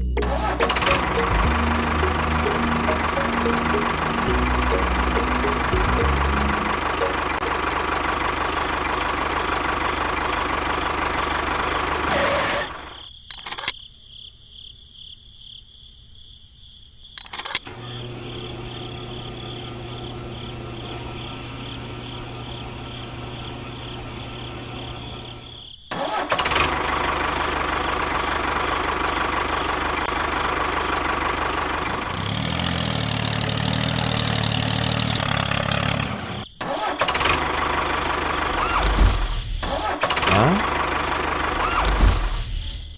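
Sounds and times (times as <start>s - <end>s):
motor running: 0.2s - 12.6s, 37.4s - 42.9s.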